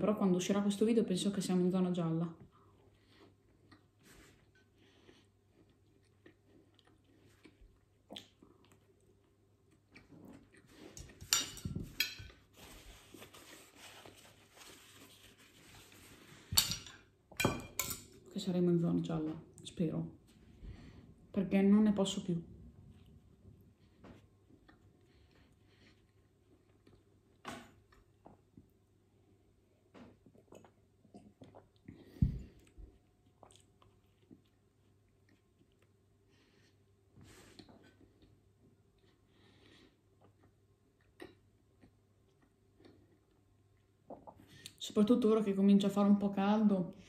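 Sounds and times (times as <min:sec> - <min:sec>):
quiet chewing: 0:02.5 - 0:11.2, 0:23.8 - 0:28.7, 0:30.2 - 0:44.8
chewing sandwich: 0:02.6 - 0:11.0, 0:32.6 - 0:36.3
dishes clattering: 0:11.2 - 0:12.4, 0:16.5 - 0:18.1
person drinking and swallowing: 0:30.0 - 0:34.0, 0:44.0 - 0:44.8.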